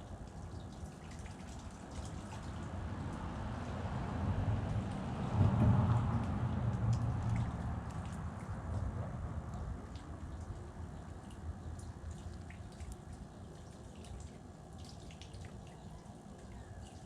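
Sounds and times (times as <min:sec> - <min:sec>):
water dripping: 0:00.0 - 0:17.0
steady low rumble: 0:02.4 - 0:13.2.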